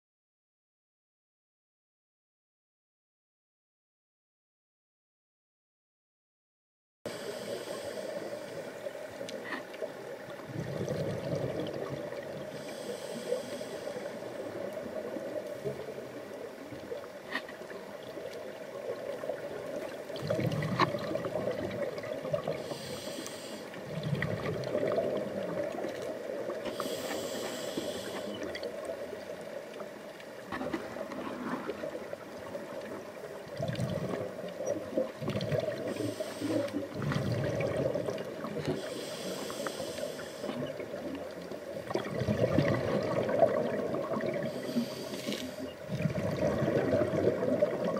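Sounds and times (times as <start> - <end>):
steady watery hiss: 7.1 - 47.9
low bubbling water surge: 10.5 - 12.3, 41.8 - 45.0, 45.9 - 47.9.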